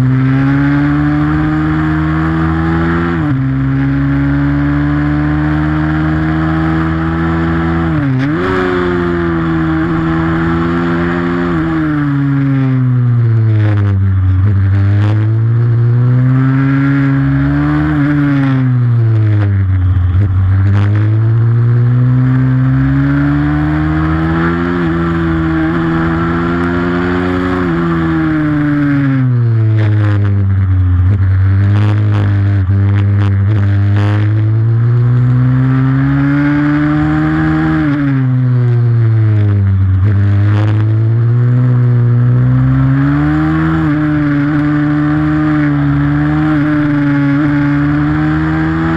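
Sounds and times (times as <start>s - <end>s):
motorbike engine revving: 0.0s - 48.9s.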